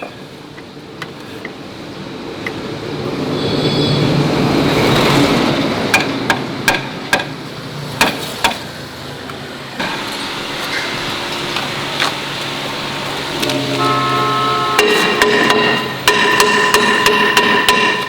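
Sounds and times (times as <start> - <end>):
steady hum: 9.8 - 18.0
sharp metal knocks: 13.3 - 18.0.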